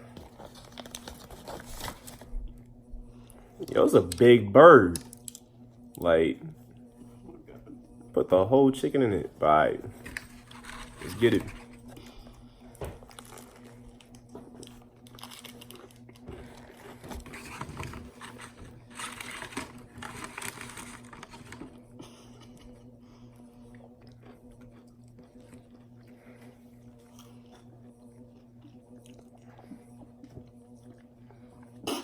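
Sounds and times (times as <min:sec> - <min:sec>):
low electrical hum: 0:00.0 - 0:32.0
chewing crunchy food: 0:10.0 - 0:32.0.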